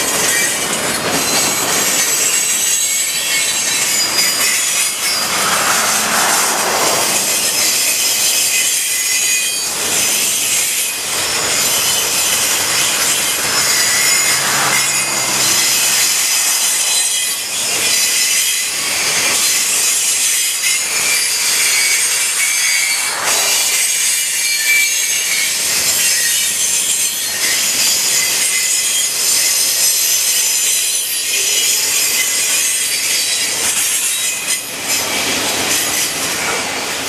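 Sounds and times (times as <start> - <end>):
train wheels rumbling and clattering: 0.0 - 24.3
high-pitched wheel squeal: 0.2 - 30.5.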